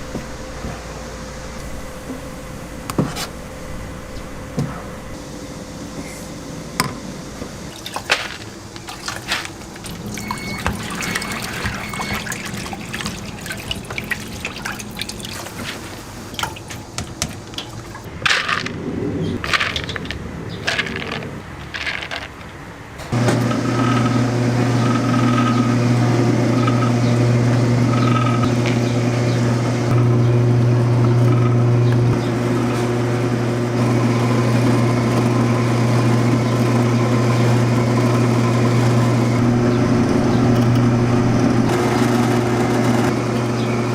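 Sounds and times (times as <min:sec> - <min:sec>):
low mechanical hum: 0:00.0 - 0:43.9
utensils clinking: 0:07.7 - 0:18.8.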